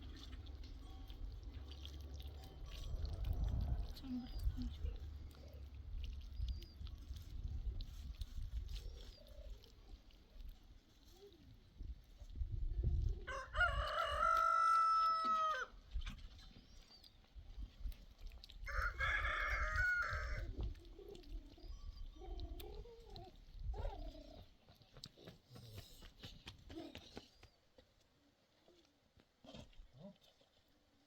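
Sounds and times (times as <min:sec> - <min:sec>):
rooster crowing: 0:13.3 - 0:15.7, 0:18.7 - 0:20.4.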